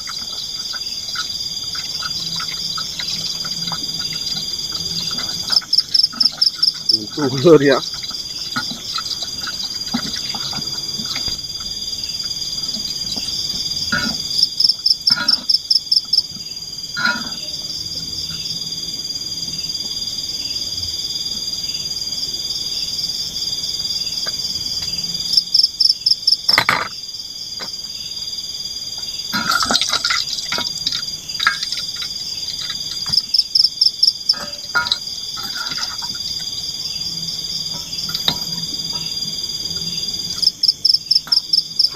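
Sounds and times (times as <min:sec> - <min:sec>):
high-pitched insect drone: 0:00.0 - 0:10.4
drips and taps: 0:00.0 - 0:11.8, 0:29.4 - 0:33.4, 0:34.3 - 0:36.4, 0:37.7 - 0:39.2.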